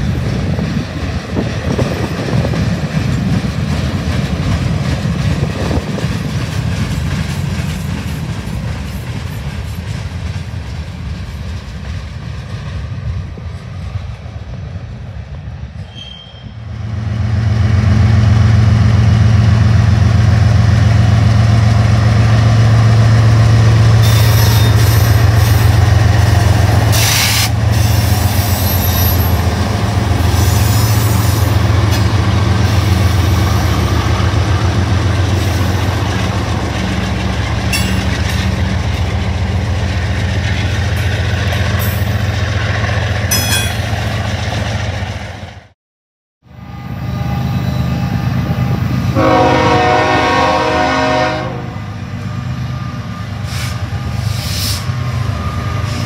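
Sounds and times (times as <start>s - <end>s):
locomotive engine drone: 16.8s - 45.4s, 46.5s - 56.0s.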